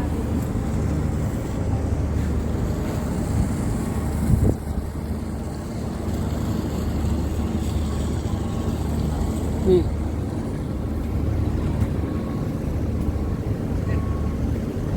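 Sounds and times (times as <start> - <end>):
boat engine droning: 0.0 - 14.9
wind on microphone: 3.2 - 5.2.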